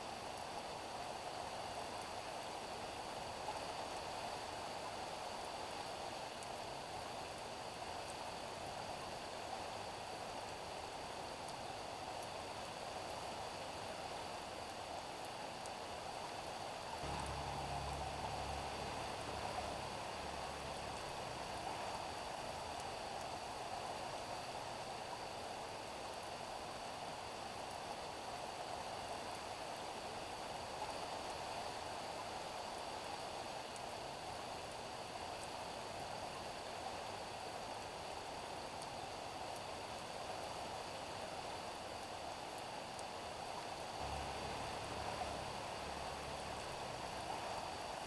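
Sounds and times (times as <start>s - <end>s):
rain falling on pavement: 14.2s - 25.1s, 39.6s - 48.0s.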